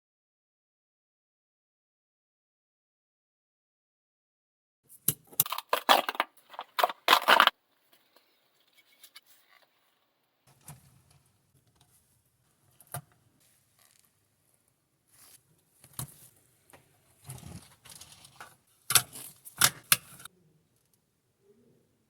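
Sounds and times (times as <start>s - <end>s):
packaging crinkling and clicking: 5.2s - 8.4s.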